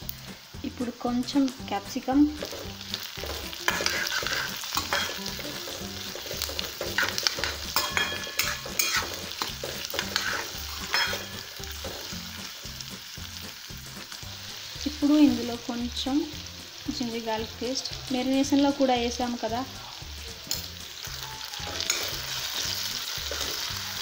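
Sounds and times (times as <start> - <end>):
vegetables sizzling in oil: 0.0 - 24.0
metal spatula scraping pan: 2.4 - 12.1, 21.5 - 24.0
spatula clinking against pan: 3.7 - 11.6, 21.5 - 22.4.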